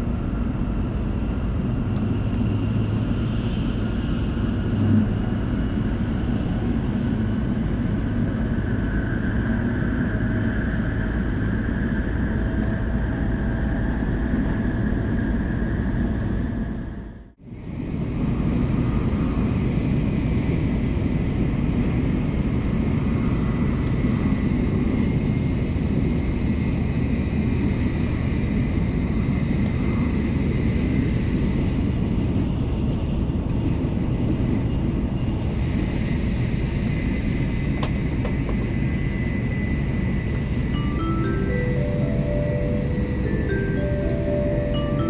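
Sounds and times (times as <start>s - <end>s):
thin high steady tone: 40.6s - 45.0s.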